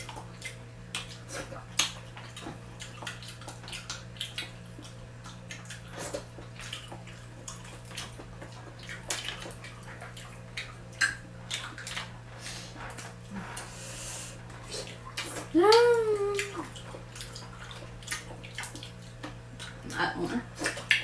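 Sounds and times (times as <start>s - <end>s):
chewing and sucking clicks: 0.0s - 15.5s, 16.3s - 19.9s
steady low hum: 0.0s - 21.0s
lip smacking: 10.2s - 20.0s.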